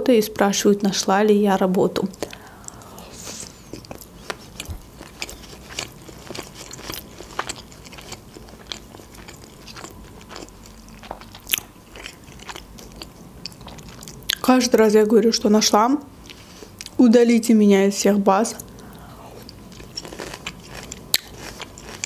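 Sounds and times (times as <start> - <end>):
wet mouth chewing clicks: 2.1 - 14.4, 18.6 - 22.0.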